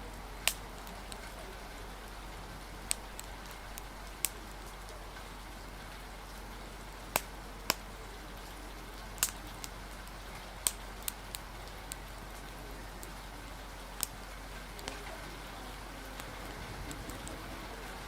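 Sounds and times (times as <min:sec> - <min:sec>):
rain hiss: 0:00.0 - 0:18.0
sharp fire pops: 0:00.0 - 0:18.0
wood fire crackling: 0:00.0 - 0:18.0.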